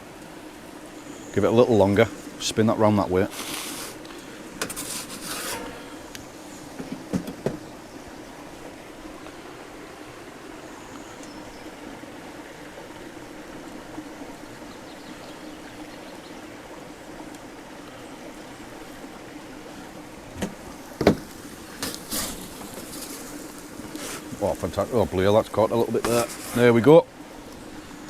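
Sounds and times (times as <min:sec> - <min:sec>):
pizza peel scraping oven floor: 0:04.6 - 0:05.9.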